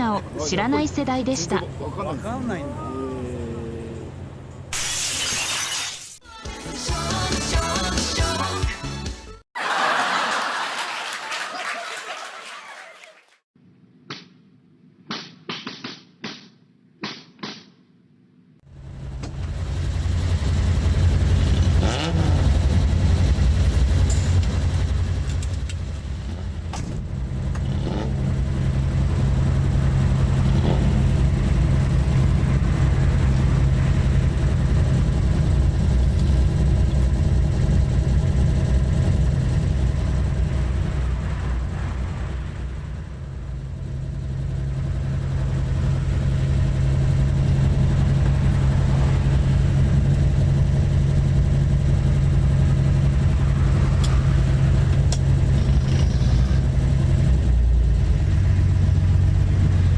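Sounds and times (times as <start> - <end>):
car engine pulling: 0.0 - 4.7, 18.7 - 59.9.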